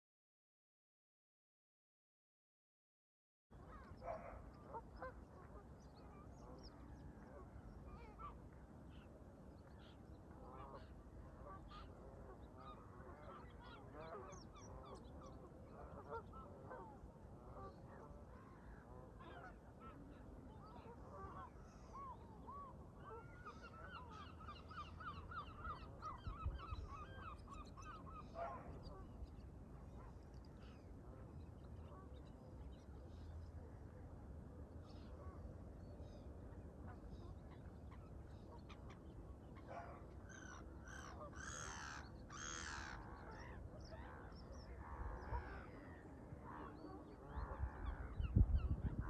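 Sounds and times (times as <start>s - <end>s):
low wind rumble: 47.4s - 49.0s.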